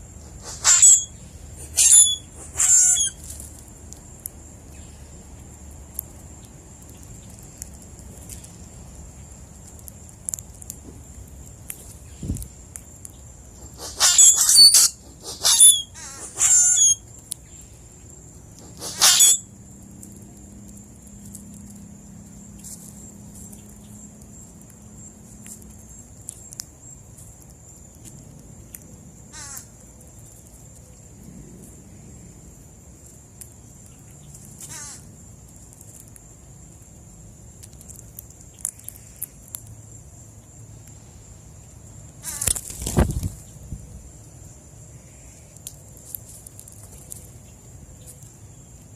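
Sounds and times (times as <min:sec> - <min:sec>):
harsh bird calls: 0:00.2 - 0:03.2, 0:13.6 - 0:17.0, 0:18.6 - 0:19.5.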